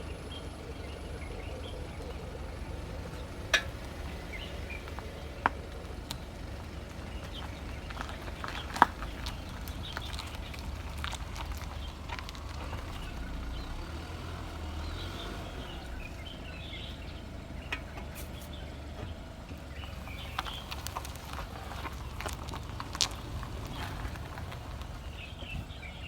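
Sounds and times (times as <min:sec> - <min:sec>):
car engine low rumble: 0:00.0 - 0:26.0
clicks and knocks from car front: 0:03.1 - 0:13.8.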